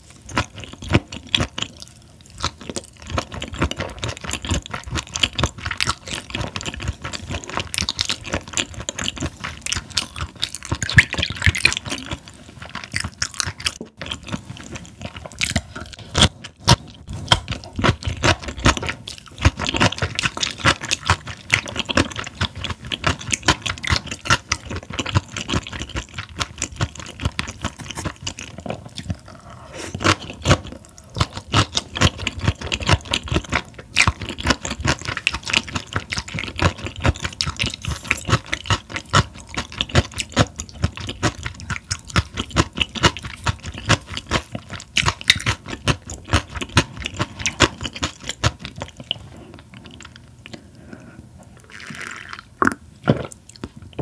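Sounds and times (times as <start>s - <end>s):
person chewing with crunching: 0.0s - 54.0s
wet mouth clicks: 51.6s - 54.0s.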